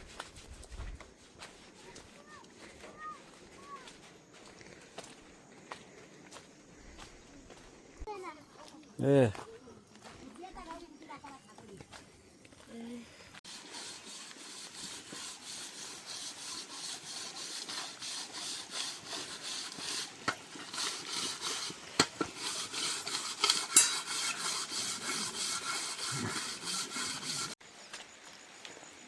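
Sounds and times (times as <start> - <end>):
rhythmic rasping scrape: 13.5 - 27.6.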